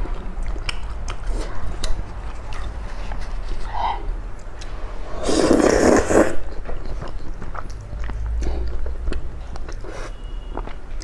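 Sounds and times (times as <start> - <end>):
wet chewing clicks: 0.0 - 3.7, 5.6 - 11.0.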